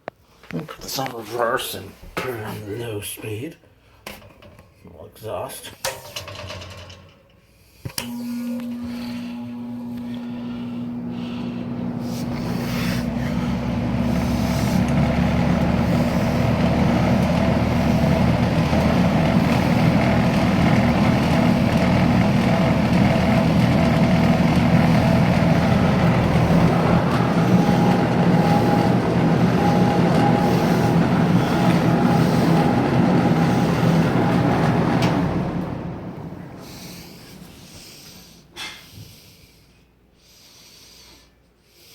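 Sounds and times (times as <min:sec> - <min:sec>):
box fan motor hum: 0:08.0 - 0:39.1
rush of air from fan: 0:08.2 - 0:39.4.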